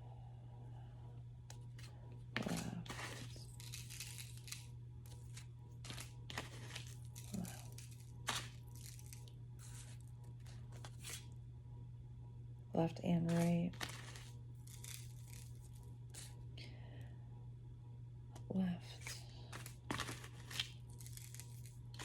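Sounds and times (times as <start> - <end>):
steady low hum: 0.0 - 22.0
cards being shuffled: 2.4 - 11.3, 13.2 - 16.3, 19.0 - 22.0.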